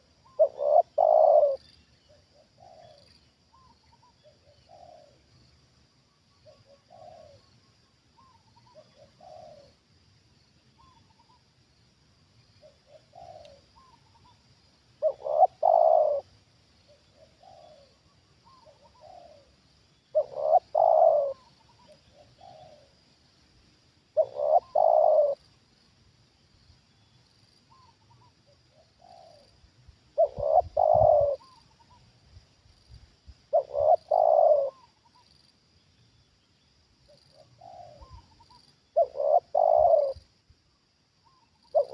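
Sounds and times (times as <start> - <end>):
doves cooing: 0.0 - 1.6, 6.5 - 7.5, 8.2 - 9.8, 12.6 - 14.3, 15.0 - 16.3, 17.2 - 23.0, 24.2 - 25.4, 30.2 - 32.0, 33.5 - 35.0, 37.4 - 40.2, 41.3 - 41.9.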